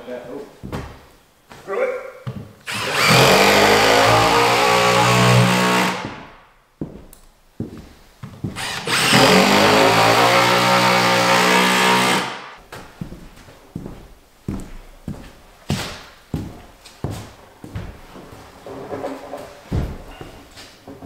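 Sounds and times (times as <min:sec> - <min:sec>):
power drill driving screws: 0:02.7 - 0:06.3, 0:08.6 - 0:12.5.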